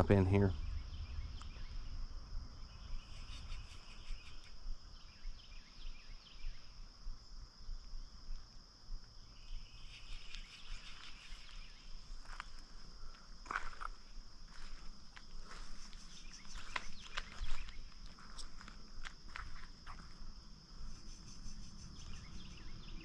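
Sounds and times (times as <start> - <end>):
low rumble: 0.0 - 3.0
high-pitched insect drone: 0.0 - 23.0
short insect chirps: 0.0 - 23.0.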